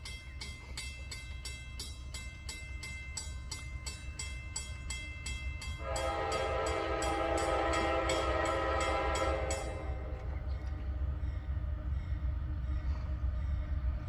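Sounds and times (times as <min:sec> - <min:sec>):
crossing bell ringing rapidly: 0:00.0 - 0:10.1
diesel train rumbling: 0:00.0 - 0:14.0
locomotive air horn blast: 0:05.8 - 0:10.3.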